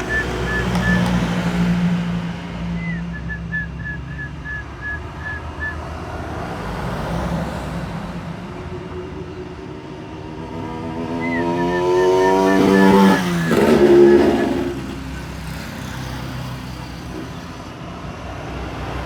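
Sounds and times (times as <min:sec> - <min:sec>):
dove calling: 0:00.0 - 0:02.0, 0:02.6 - 0:06.0, 0:10.6 - 0:15.2
low hum of vehicle traffic: 0:00.0 - 0:19.0.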